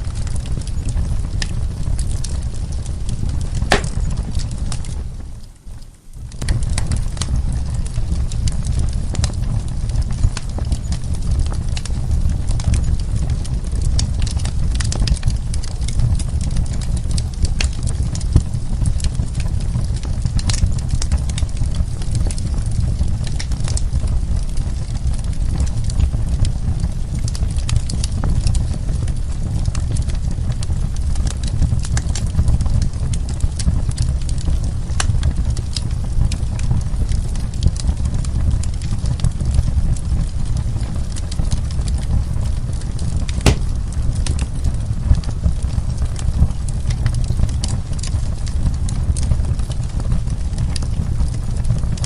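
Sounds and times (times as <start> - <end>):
flame rumbling: 0.0 - 52.0
logs crackling and popping: 0.0 - 52.0.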